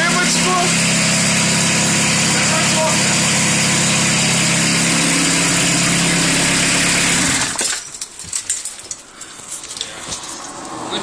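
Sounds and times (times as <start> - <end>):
diesel engine running: 0.0 - 7.6.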